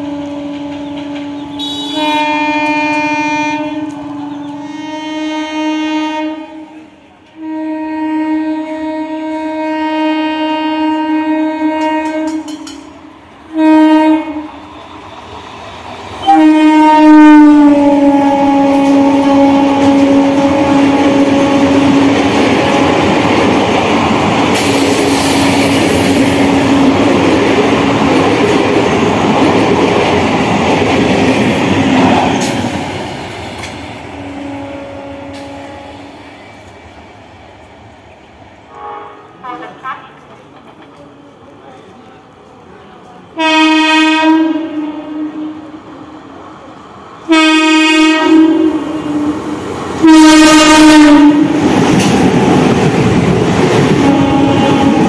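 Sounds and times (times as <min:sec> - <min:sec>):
train coaches rushing and rattling: 0:00.0 - 0:05.7, 0:11.0 - 0:38.4, 0:39.2 - 0:44.8, 0:45.9 - 0:55.0
train horn blasts: 0:00.0 - 0:12.8, 0:13.5 - 0:14.6, 0:16.2 - 0:23.0, 0:26.4 - 0:27.1, 0:34.2 - 0:36.2, 0:38.7 - 0:39.7, 0:43.4 - 0:45.8, 0:47.3 - 0:51.6, 0:54.0 - 0:55.0.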